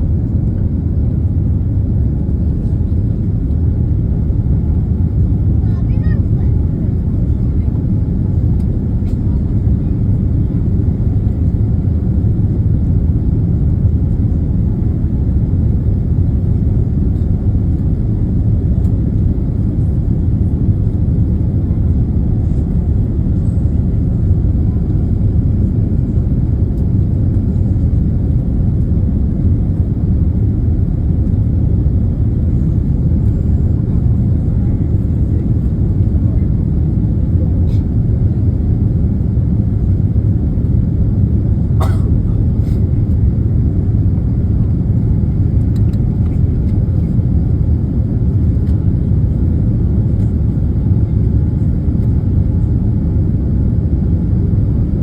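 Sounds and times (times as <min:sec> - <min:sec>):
jet cabin rumble: 0:00.0 - 0:55.0.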